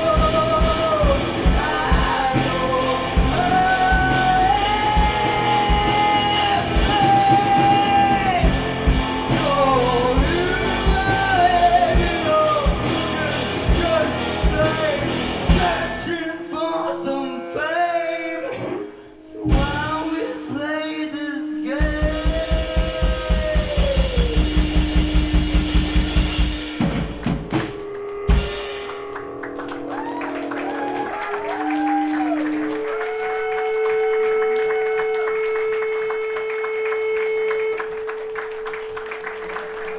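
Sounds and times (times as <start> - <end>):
steady drum pulse: 0.0 - 16.1, 19.5 - 20.2, 21.7 - 30.1
rock band playing: 0.0 - 16.3, 19.4 - 20.4, 21.8 - 39.9
people singing: 0.0 - 18.7.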